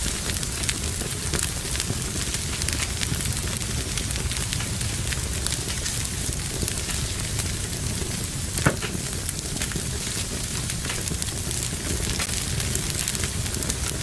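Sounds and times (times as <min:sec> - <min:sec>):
wood fire crackling: 0:00.0 - 0:14.0
wood snapping: 0:08.6 - 0:09.1.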